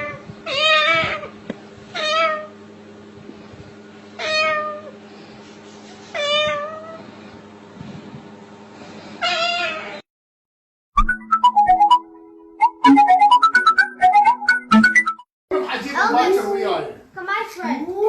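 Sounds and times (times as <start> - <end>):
cat meowing: 0.0 - 1.3, 2.0 - 2.5, 4.2 - 4.9, 6.1 - 7.0, 9.2 - 10.0
steady low hum: 0.0 - 9.2.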